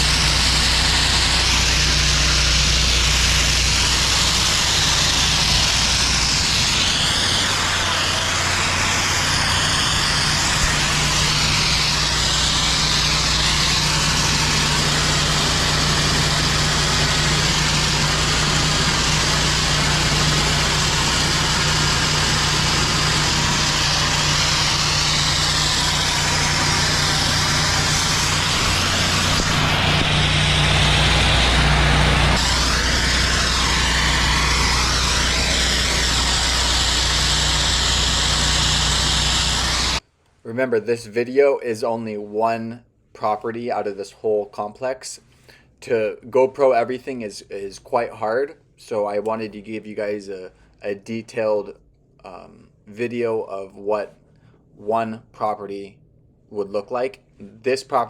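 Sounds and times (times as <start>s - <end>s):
pressure washer engine drone: 0.0s - 40.0s
pressure washer water spray hissing: 0.0s - 40.0s.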